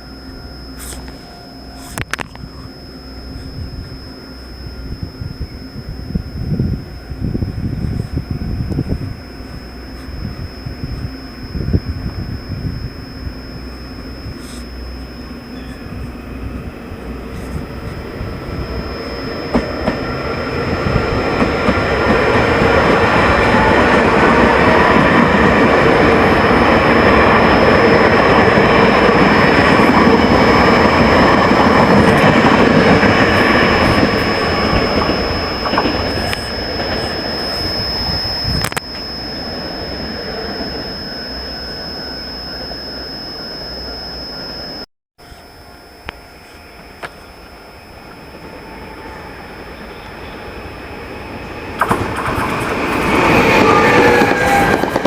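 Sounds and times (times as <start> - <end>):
steady high-pitched tone: 0.0 - 55.0
train rumble and wheel clatter: 48.3 - 55.0.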